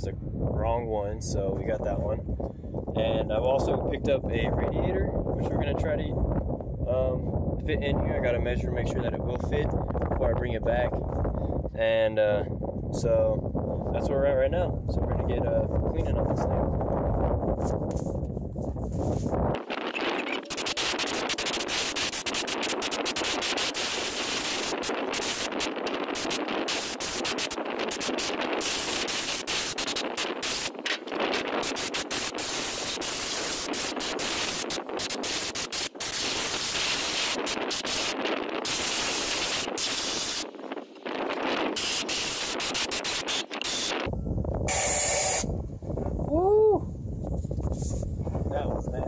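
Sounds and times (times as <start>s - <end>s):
compressed air hissing: 19.8s - 40.5s, 41.7s - 44.1s, 44.7s - 45.5s.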